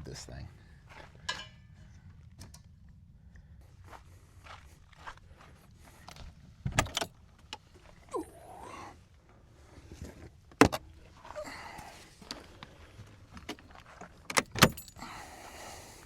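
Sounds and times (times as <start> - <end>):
metal hardware jangling: 14.3 - 15.2.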